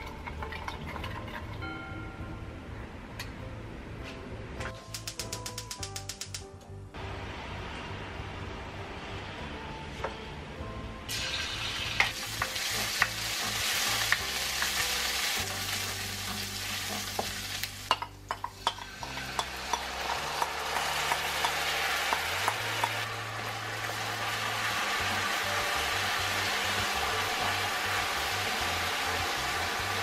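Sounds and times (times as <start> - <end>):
garlic sizzling in oil: 11.1 - 30.0.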